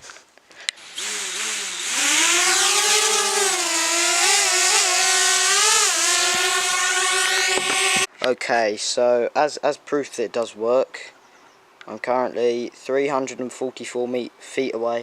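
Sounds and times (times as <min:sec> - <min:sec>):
drone propellers whining: 0:00.8 - 0:08.1.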